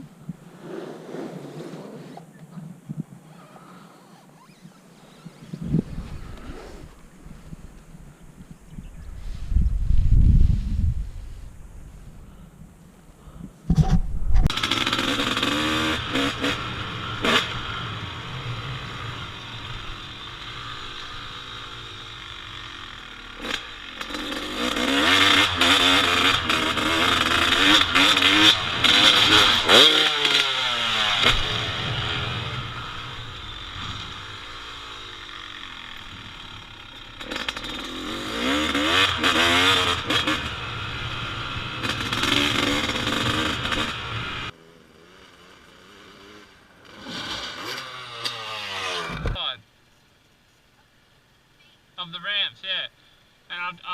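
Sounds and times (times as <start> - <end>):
dirt bike engine revving: 14.5 - 49.5.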